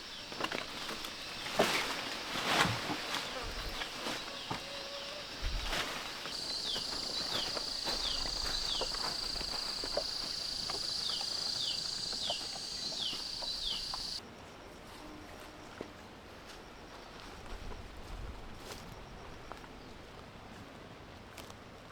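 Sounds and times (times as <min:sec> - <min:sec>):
insect whining: 0:03.1 - 0:14.2.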